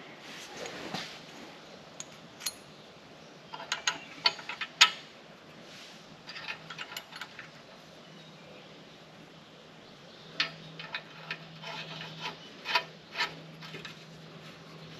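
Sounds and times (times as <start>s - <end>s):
metal clicks and clinks: 2.0s - 2.7s, 6.3s - 7.6s.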